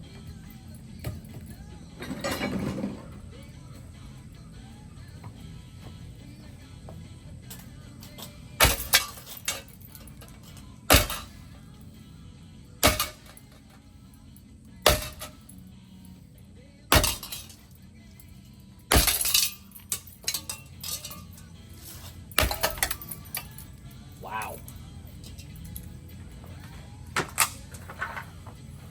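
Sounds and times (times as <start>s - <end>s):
background music: 0.0s - 28.9s
sharp blows smashing fan: 8.6s - 9.2s, 10.9s - 11.3s, 16.9s - 17.5s, 18.9s - 19.5s
breaking pieces clattering: 8.6s - 9.7s, 10.9s - 11.4s, 12.8s - 13.4s, 16.9s - 17.6s, 18.9s - 21.4s, 22.3s - 23.6s.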